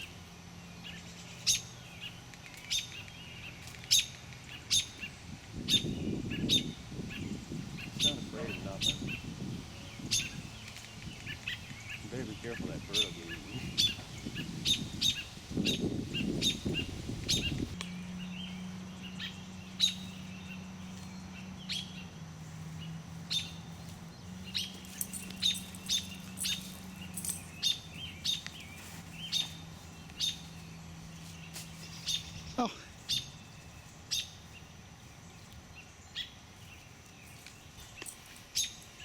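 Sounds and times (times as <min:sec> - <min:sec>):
steady low hum: 0:00.0 - 0:39.0
bird alarm chirps: 0:05.7 - 0:22.1, 0:23.1 - 0:30.7.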